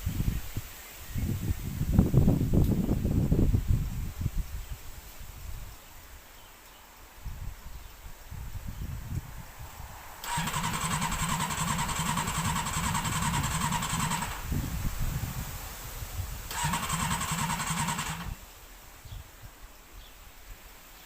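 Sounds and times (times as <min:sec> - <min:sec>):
engine starter cranking: 0:10.2 - 0:14.5, 0:16.5 - 0:18.4.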